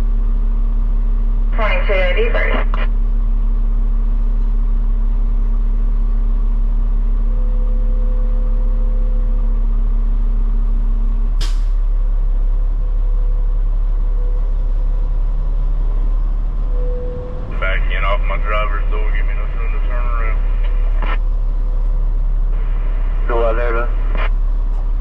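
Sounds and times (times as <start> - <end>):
diesel truck engine rumbling: 0.0 - 25.0
air brake hiss: 11.4 - 11.8.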